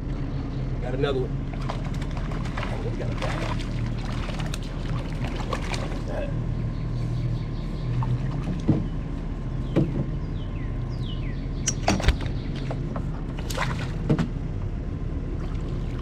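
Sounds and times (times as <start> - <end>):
steady low rumble: 0.0 - 16.0
knocks and taps on a canoe: 8.2 - 9.0, 9.6 - 10.2, 11.7 - 14.4.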